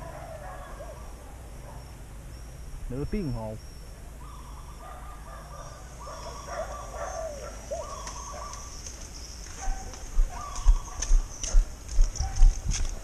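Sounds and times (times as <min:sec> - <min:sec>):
birds calling: 0:00.0 - 0:13.0
footsteps on concrete: 0:07.9 - 0:13.0.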